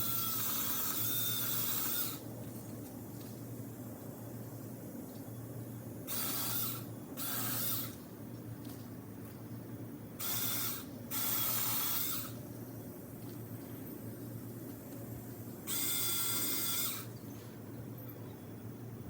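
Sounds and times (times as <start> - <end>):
electric chainsaw cutting branches: 0.0 - 2.3, 6.1 - 8.0, 10.2 - 12.4, 15.7 - 17.1
steady low hum: 0.0 - 19.0.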